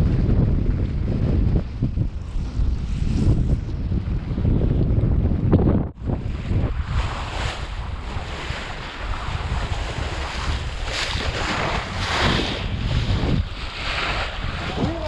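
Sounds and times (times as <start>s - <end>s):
wind buffeting microphone: 0.0s - 15.0s
waves washing against boat: 6.0s - 15.0s.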